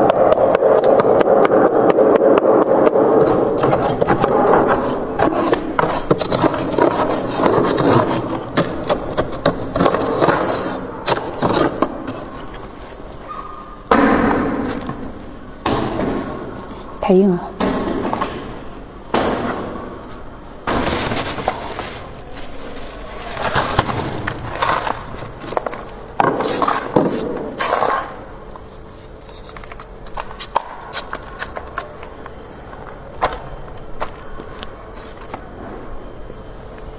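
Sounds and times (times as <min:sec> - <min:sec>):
frost ice crunching: 0:03.2 - 0:13.1, 0:20.8 - 0:32.2.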